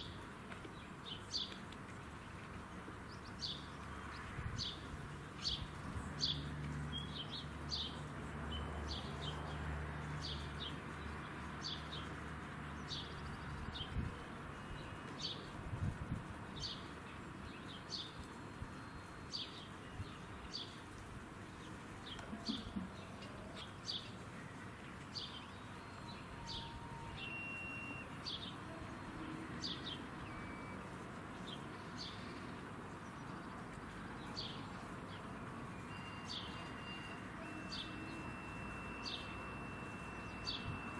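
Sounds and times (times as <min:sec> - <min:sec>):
bird chirping: 0:16.5 - 0:40.9.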